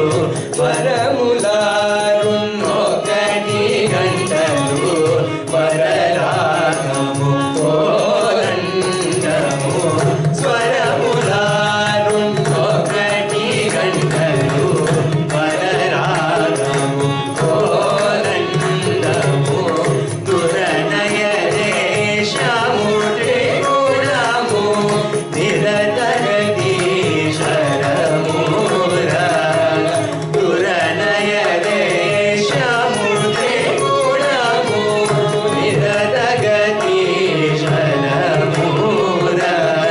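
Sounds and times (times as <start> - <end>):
mridangam drumming: 0.0 - 39.9
singers: 0.0 - 39.9
violin: 0.0 - 39.9.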